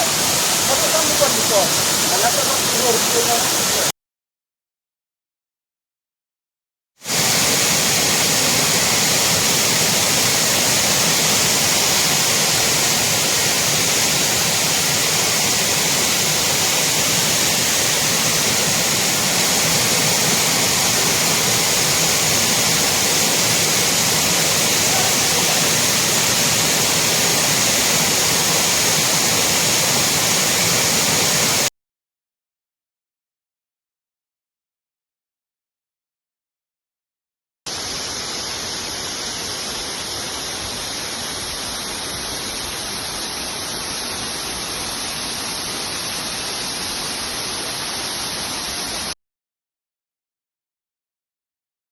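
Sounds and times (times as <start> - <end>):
waterfall rushing: 0.0 - 3.9, 7.1 - 31.7, 37.7 - 49.2.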